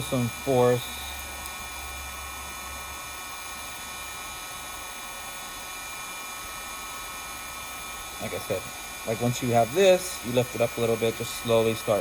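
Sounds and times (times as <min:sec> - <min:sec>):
steady hiss: 0:00.0 - 0:03.9.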